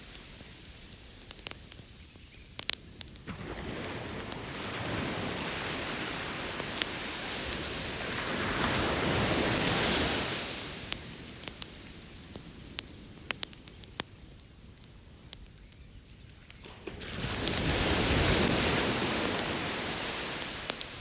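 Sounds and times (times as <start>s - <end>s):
campfire crackling: 0.0s - 21.0s
ocean wave washing in: 3.3s - 11.0s, 16.7s - 21.0s.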